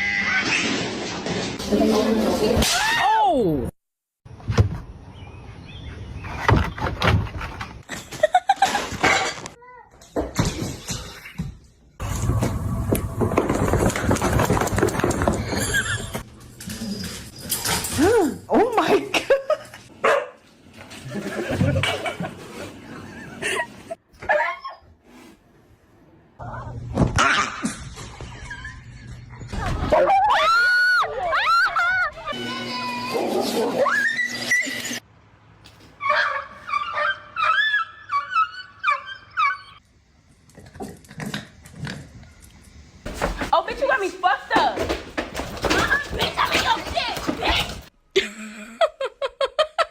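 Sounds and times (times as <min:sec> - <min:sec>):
dog barking: 0:20.0 - 0:20.4, 0:36.0 - 0:37.6
dog whining: 0:36.0 - 0:39.8.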